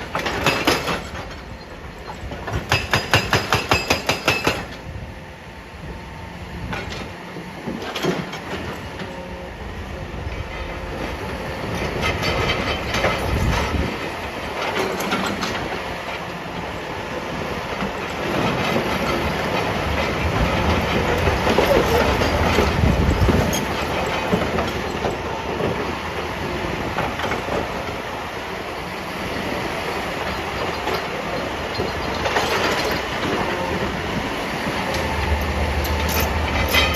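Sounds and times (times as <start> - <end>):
heavy machinery rumbling: 17.4 - 28.1, 29.4 - 36.9.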